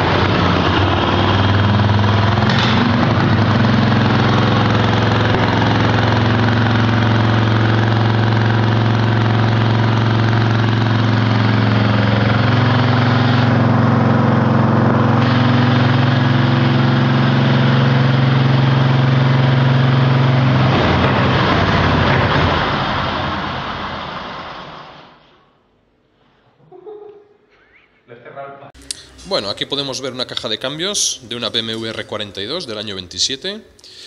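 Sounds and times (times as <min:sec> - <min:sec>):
motorcycle engine running: 0:00.0 - 0:23.7.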